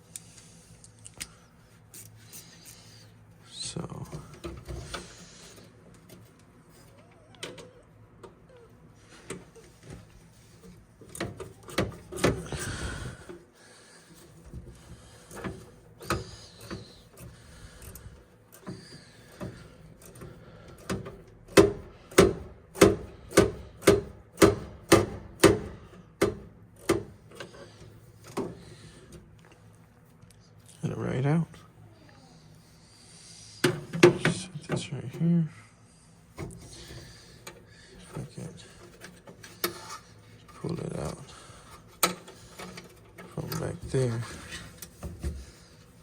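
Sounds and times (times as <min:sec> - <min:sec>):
knocks and rustling of parts: 0:04.0 - 0:08.4, 0:09.1 - 0:13.5, 0:14.1 - 0:29.7, 0:33.6 - 0:35.2, 0:36.3 - 0:46.0.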